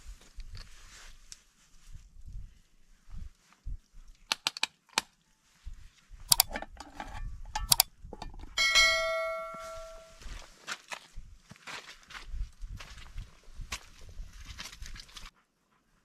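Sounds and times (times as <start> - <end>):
sharp clicks and knocks: 6.3 - 8.6
metal object ringing when struck: 8.6 - 10.2.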